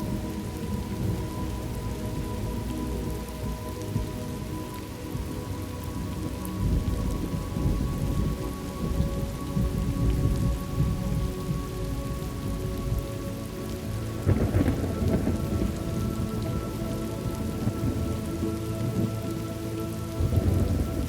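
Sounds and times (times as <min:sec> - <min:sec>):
steady rain: 0:00.0 - 0:21.0
thunder rumbling: 0:00.0 - 0:21.0
loud thunder crack: 0:14.3 - 0:16.2.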